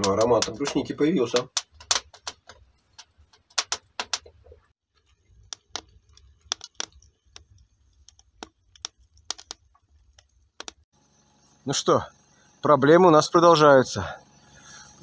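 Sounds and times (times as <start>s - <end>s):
sharp clicks and crackles: 0.0s - 10.9s.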